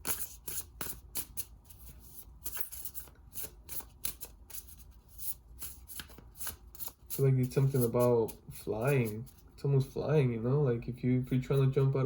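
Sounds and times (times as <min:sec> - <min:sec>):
cards being shuffled: 0:00.0 - 0:09.5.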